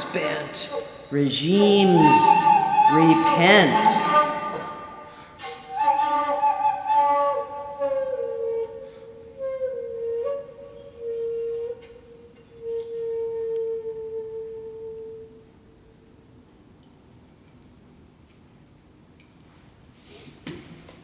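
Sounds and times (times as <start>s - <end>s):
shakuhachi playing slow breathy phrase: 0.0s - 15.6s.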